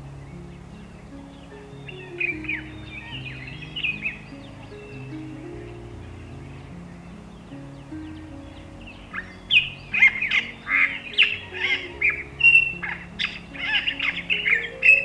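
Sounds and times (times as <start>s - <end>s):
birds chirping: 0.0s - 15.0s
soft background music: 0.0s - 15.0s.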